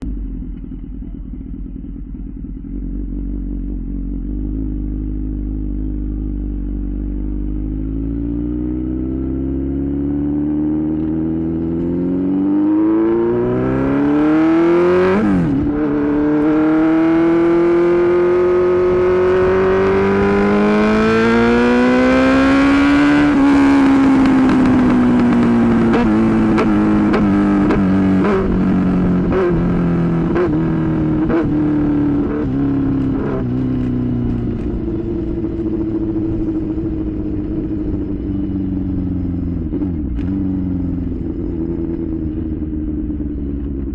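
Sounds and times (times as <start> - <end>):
exhaust pops and crackles: 0.0 - 2.3, 23.3 - 28.5, 32.9 - 37.7
motorcycle engine accelerating: 0.0 - 43.9.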